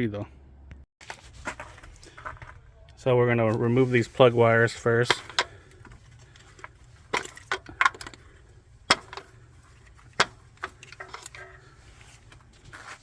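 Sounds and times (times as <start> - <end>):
clicks and knocks on engine parts: 4.9 - 12.5.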